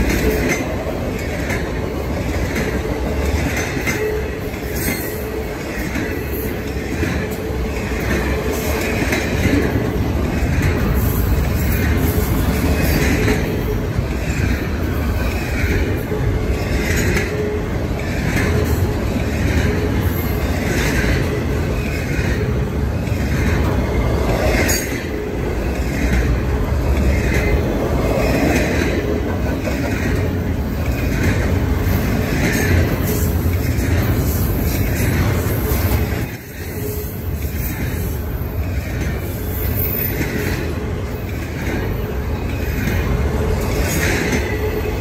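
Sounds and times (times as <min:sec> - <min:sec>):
freight train wheels rumbling: 0:00.0 - 0:45.0
rail clatter: 0:00.0 - 0:45.0.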